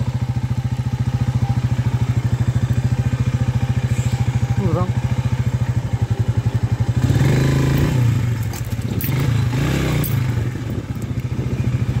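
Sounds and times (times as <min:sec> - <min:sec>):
motorcycle engine revving and idling: 0:00.0 - 0:12.0
bike scraping and clattering: 0:08.3 - 0:09.4.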